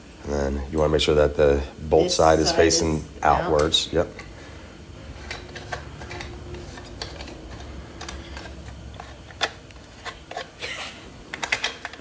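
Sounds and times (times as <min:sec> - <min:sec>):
metal parts and tools clicking: 0:11.3 - 0:12.0.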